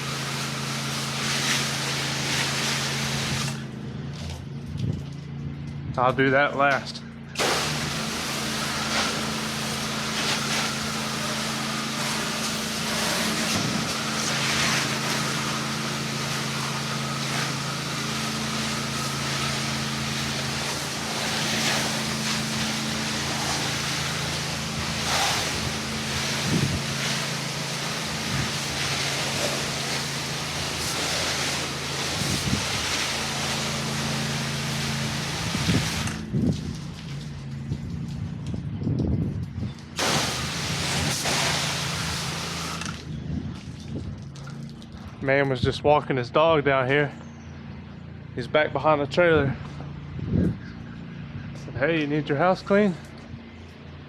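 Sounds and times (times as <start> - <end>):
pressure washer spray hissing: 0.0 - 3.6, 7.4 - 36.2, 40.0 - 43.0
pressure washer engine hum: 0.0 - 54.0.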